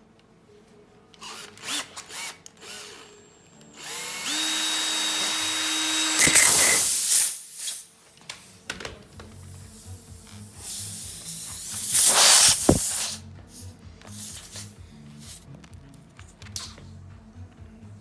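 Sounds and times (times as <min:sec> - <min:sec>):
electric motor whine: 0:01.6 - 0:07.2
air hissing burst: 0:06.2 - 0:07.9, 0:10.6 - 0:13.2.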